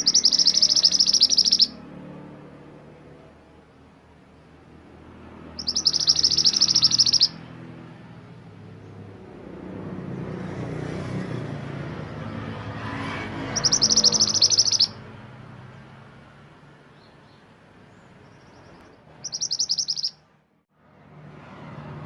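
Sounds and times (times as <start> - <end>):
songbird twittering chirps: 0.0 - 1.8, 5.4 - 7.5, 13.4 - 15.0, 16.9 - 20.3.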